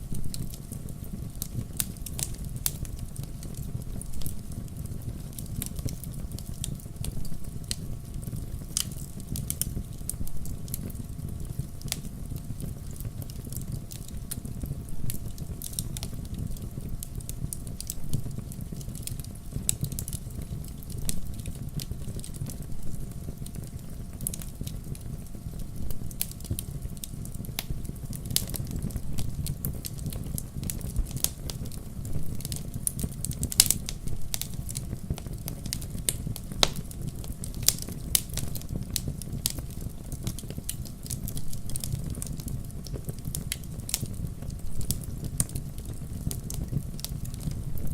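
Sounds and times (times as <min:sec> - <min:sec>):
low rumble of flame: 0:00.0 - 0:47.9
logs crackling and popping: 0:00.1 - 0:47.9.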